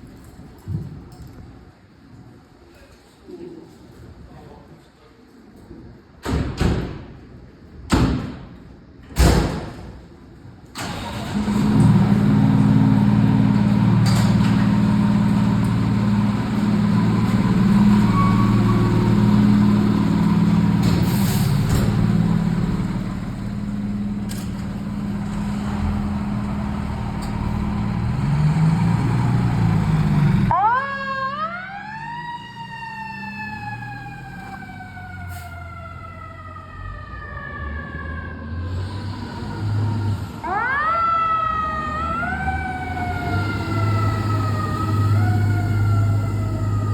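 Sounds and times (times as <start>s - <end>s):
diesel engines running: 10.7s - 36.6s, 38.6s - 46.9s.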